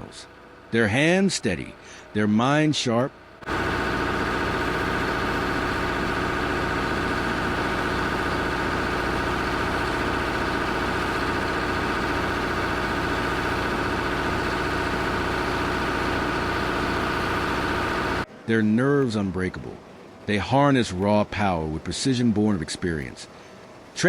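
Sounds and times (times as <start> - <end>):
heavy machine engine running: 3.4 - 18.3.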